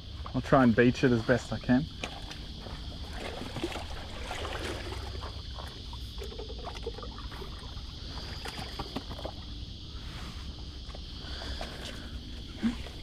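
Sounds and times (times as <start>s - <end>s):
water moving: 1.3s - 9.6s.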